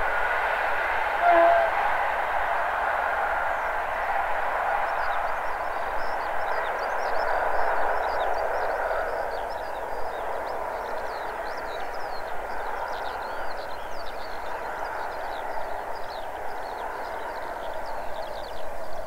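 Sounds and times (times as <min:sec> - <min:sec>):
distant train passing: 0:00.0 - 0:19.0
songbirds chirping and trilling: 0:04.8 - 0:19.0.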